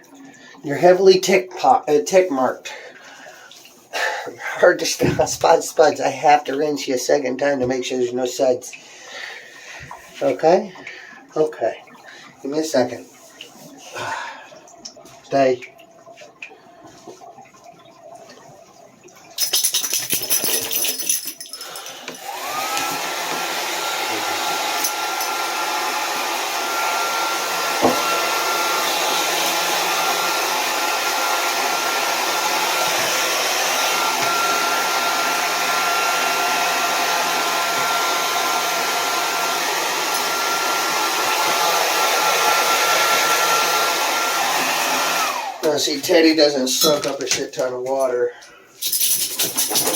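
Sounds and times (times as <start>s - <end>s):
blow dryer whining and rushing air: 21.8s - 45.8s.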